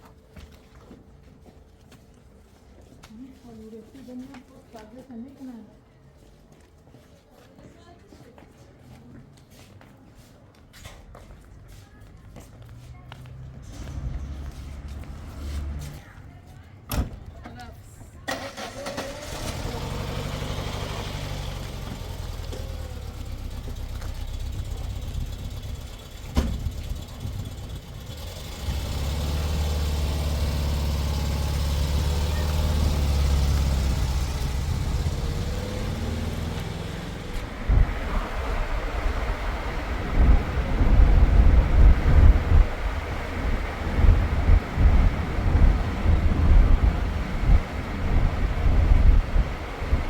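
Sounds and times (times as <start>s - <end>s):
car engine running: 18.7s - 50.0s
wind buffeting microphone: 33.0s - 50.0s.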